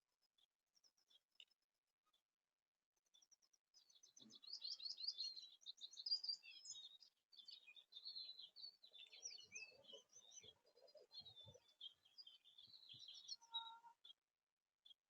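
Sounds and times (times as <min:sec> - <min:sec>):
songbirds twittering: 0:03.1 - 0:14.2.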